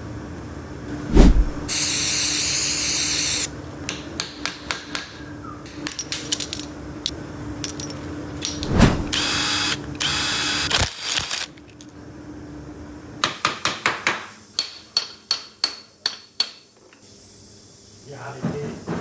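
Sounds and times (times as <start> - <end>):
power tool running: 9.0 - 11.3.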